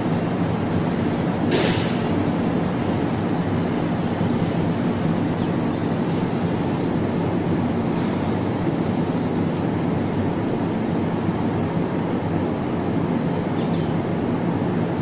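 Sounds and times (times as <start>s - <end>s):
electric train rumbling: 0.0s - 15.0s
brief hiss: 1.5s - 2.1s.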